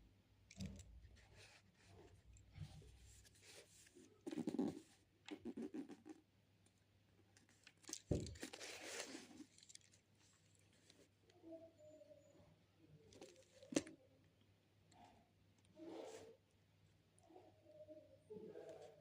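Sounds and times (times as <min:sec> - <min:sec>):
rustling and crinkling: 0:07.2 - 0:11.3.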